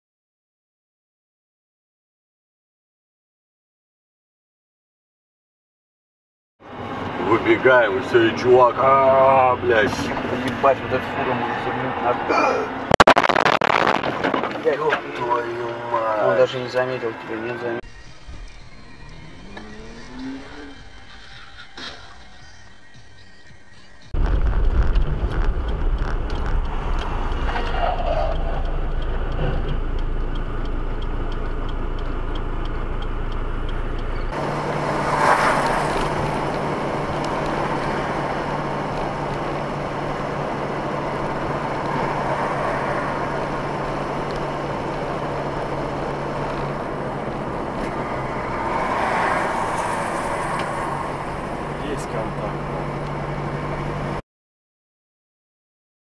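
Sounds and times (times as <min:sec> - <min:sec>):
car engine and road noise: 0:06.6 - 0:54.2
steady low hum: 0:24.2 - 0:34.7.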